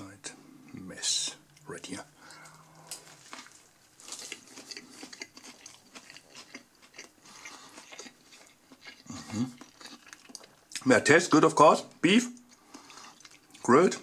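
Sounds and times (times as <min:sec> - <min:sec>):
person chewing: 0:01.5 - 0:10.9, 0:11.9 - 0:14.0.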